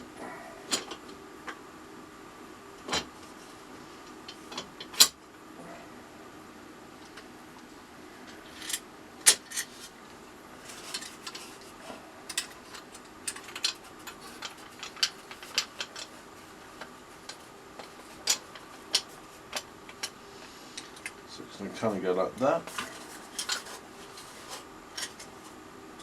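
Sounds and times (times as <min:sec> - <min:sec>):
wooden parts clicking and tapping: 0:12.3 - 0:20.2.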